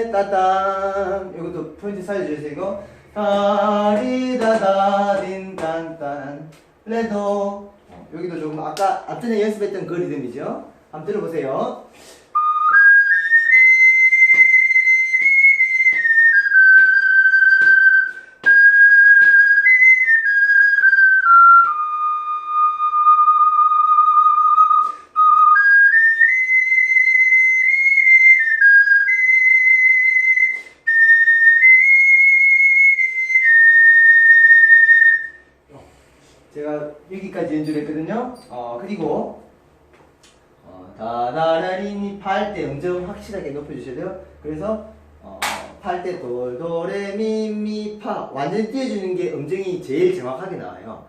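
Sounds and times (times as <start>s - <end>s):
ocarina melody: 12.3s - 35.6s.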